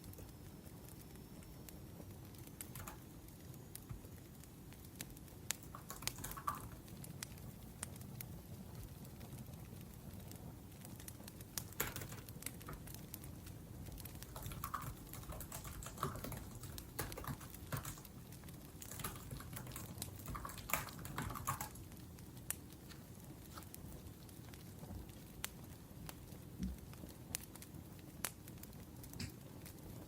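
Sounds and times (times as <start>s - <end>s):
wood fire crackling: 0.0s - 30.0s
typing on laptop keyboard: 2.4s - 4.0s, 5.5s - 7.2s, 11.0s - 22.0s.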